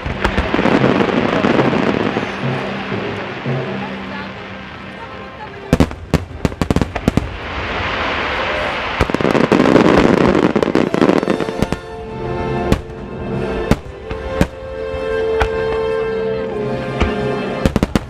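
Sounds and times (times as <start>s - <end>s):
fireworks bangs and crackling: 0.0s - 18.0s
music: 0.0s - 18.0s.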